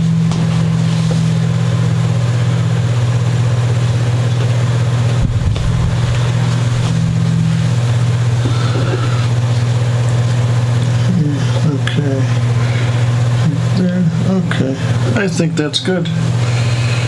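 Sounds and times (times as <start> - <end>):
steady low hum: 0.0 - 17.0
low bump: 5.1 - 8.5.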